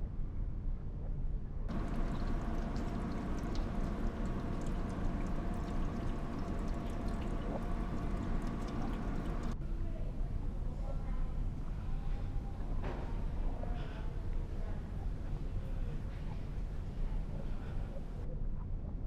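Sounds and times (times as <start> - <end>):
small splashes: 1.7 - 9.6
water pouring in a stream: 1.7 - 9.6.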